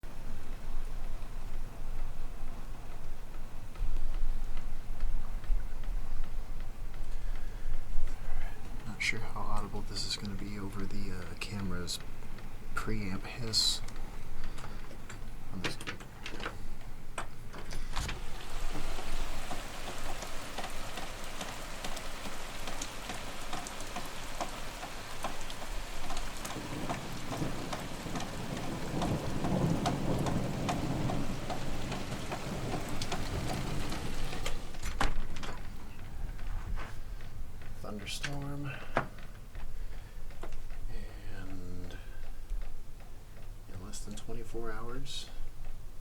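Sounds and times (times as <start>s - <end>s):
rain falling: 0.0s - 46.0s
rumble of thunder: 25.8s - 36.5s.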